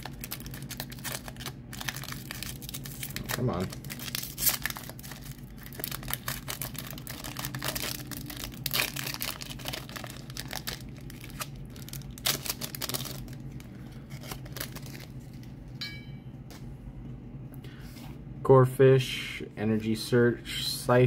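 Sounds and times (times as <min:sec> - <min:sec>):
foil wrapper crinkling and tearing: 0:00.0 - 0:15.6.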